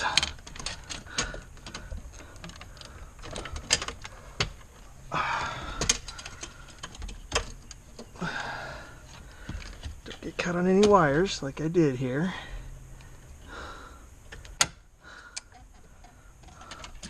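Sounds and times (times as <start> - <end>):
plastic connectors clicking and rattling: 0.0 - 4.7, 5.6 - 8.2, 14.3 - 17.0.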